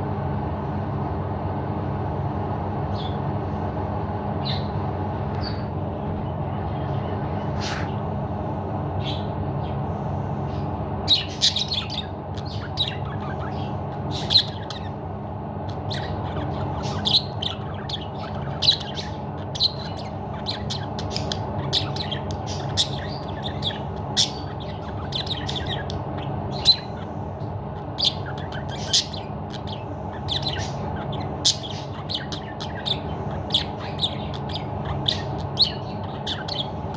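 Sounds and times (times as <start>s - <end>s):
low background hum: 0.0s - 36.9s
budgerigar chirping and squawking: 10.5s - 15.0s, 15.6s - 36.9s.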